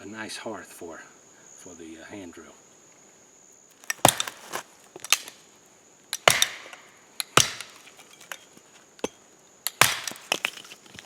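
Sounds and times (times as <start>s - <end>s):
wood splintering crackle: 3.7s - 5.4s, 6.2s - 8.4s, 9.7s - 11.0s
blade striking wood: 3.8s - 5.4s, 6.2s - 8.4s, 9.0s - 11.0s.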